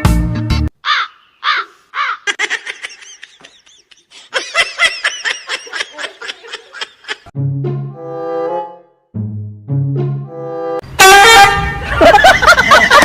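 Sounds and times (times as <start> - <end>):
high-pitched laughter: 2.0 - 7.3, 11.8 - 13.0.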